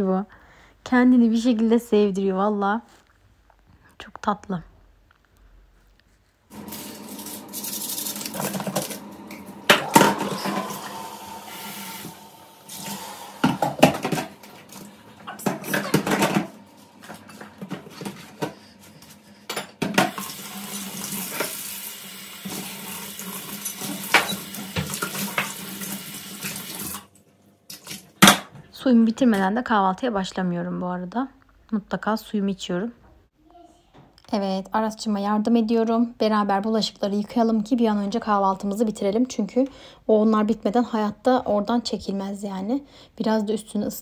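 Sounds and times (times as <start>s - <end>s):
dishes clattering: 9.6s - 11.0s, 13.4s - 18.6s, 19.4s - 20.3s, 23.6s - 25.6s
tap running into sink: 11.9s - 16.5s, 19.8s - 21.8s, 22.5s - 27.0s.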